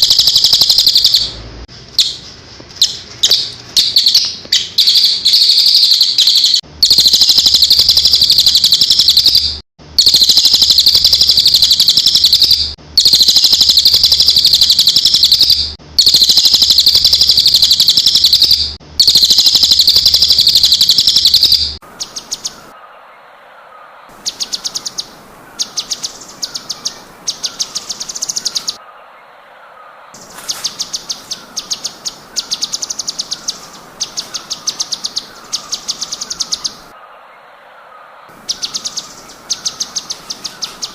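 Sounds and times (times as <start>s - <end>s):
bird chattering trills: 0.0s - 1.4s, 2.0s - 23.0s, 23.7s - 29.0s, 29.7s - 40.9s
songbird trilling: 0.0s - 1.4s, 2.8s - 22.9s, 23.6s - 40.9s
soft lower bird call: 19.4s - 40.9s.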